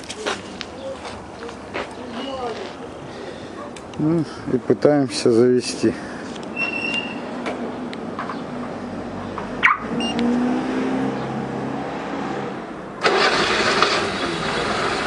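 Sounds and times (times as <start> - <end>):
car engine starting and running: 9.3 - 15.0
short beep: 9.7 - 10.2.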